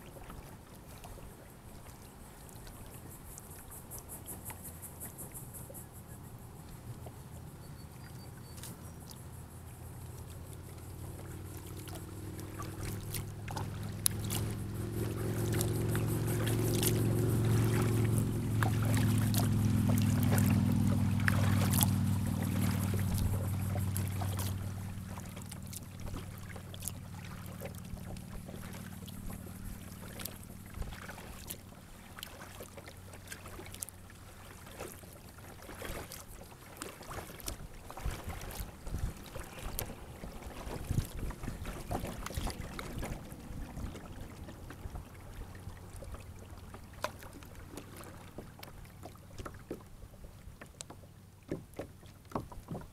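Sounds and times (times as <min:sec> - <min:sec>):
distant engine hum: 0:00.0 - 0:52.9
water dripping and splashing: 0:10.1 - 0:34.9, 0:35.6 - 0:40.0.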